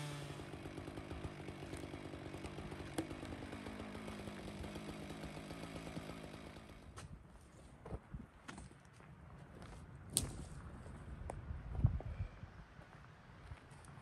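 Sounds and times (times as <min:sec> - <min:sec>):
chainsaw idling: 0:00.0 - 0:07.0.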